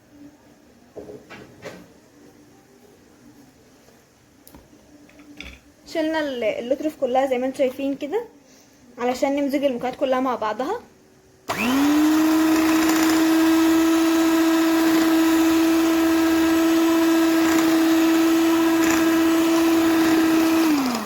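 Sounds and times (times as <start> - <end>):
electric mixer motor whining: 11.5 - 21.0.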